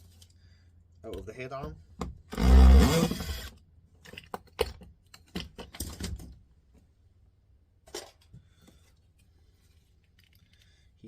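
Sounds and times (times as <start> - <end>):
small parts clicking and tapping: 9.2 - 10.9.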